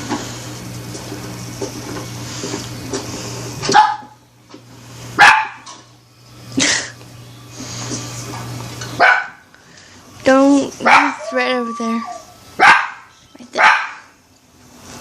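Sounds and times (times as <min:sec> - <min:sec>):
dog barking: 0:03.7 - 0:04.2, 0:05.2 - 0:05.7, 0:09.0 - 0:09.4, 0:10.8 - 0:11.4, 0:12.6 - 0:14.1.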